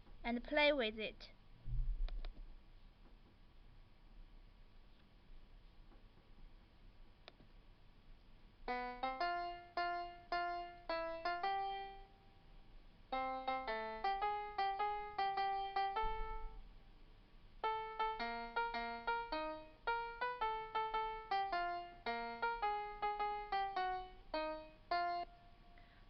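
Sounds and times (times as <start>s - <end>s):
synthesized piano melody: 8.7s - 12.3s, 13.1s - 16.7s, 17.6s - 25.6s.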